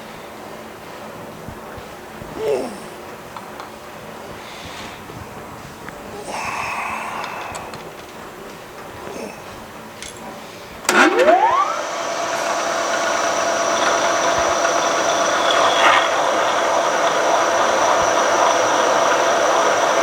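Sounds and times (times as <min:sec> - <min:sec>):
milling machine spindle whine: 0:00.2 - 0:20.0
drill bit cutting steel: 0:10.9 - 0:20.0.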